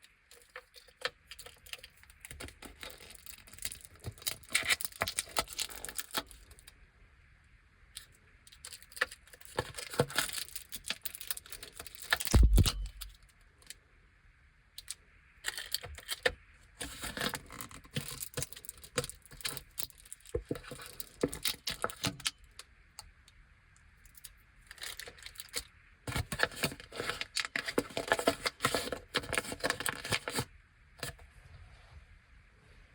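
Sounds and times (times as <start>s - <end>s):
plastic wrappers crinkling: 0.3s - 6.6s, 8.6s - 13.1s, 15.5s - 22.3s, 24.7s - 31.1s.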